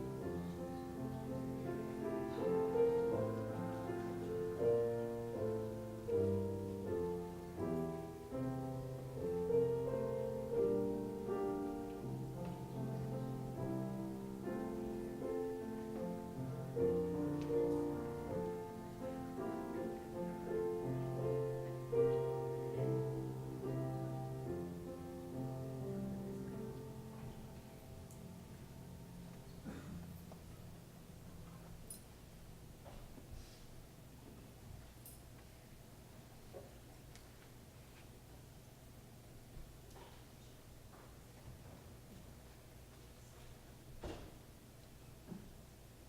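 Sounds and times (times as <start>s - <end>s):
slow piano music: 0.0s - 32.1s.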